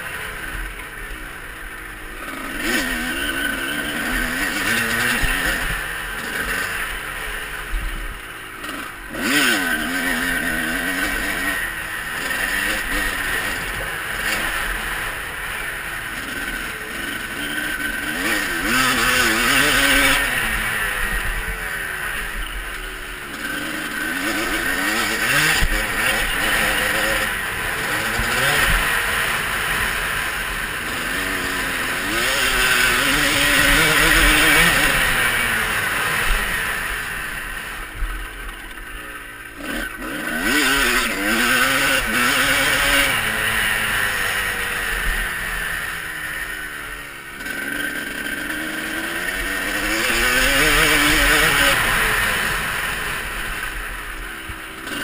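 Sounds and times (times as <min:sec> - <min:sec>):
motocross bike engines revving: 0:00.0 - 0:55.0.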